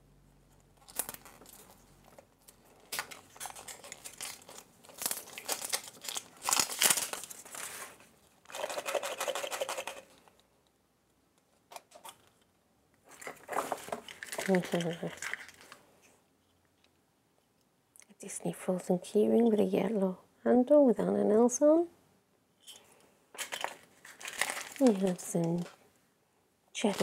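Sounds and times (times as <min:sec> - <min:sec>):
packaging crinkling and tearing: 0:00.6 - 0:10.4, 0:13.0 - 0:15.8, 0:23.4 - 0:25.8, 0:26.8 - 0:27.0.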